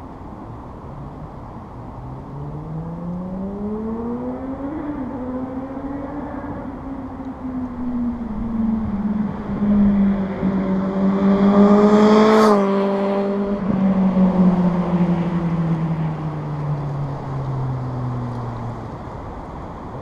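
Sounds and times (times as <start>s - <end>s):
rush of wind: 0.0s - 20.0s
motorcycle engine passing by: 7.9s - 17.8s.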